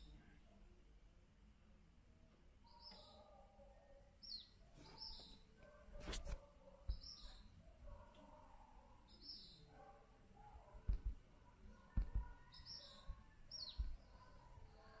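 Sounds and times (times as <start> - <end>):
faint small bird chirps: 0.0 - 0.7, 2.6 - 15.0
dull low thumps: 10.8 - 11.3, 11.9 - 14.1.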